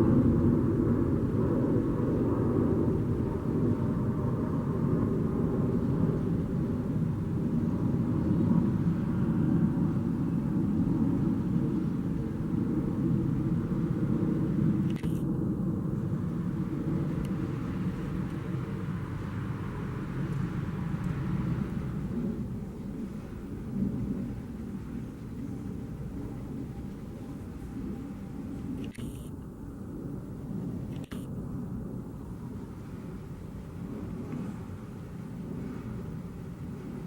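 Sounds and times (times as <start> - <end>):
jet engines rumbling: 0.0 - 37.0
brief click: 28.8 - 29.4.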